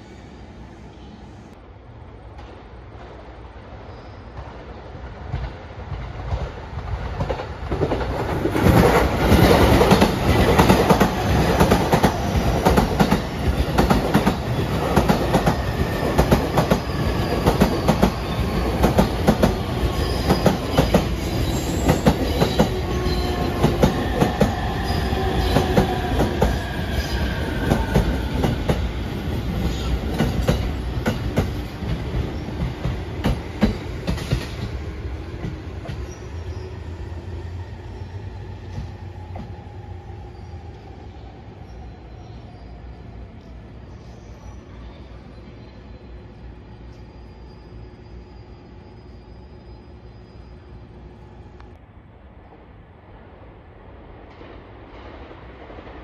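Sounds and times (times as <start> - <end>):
falling train whine: 0.0 - 56.0
train wheels clicking over rail joints: 29.7 - 34.8.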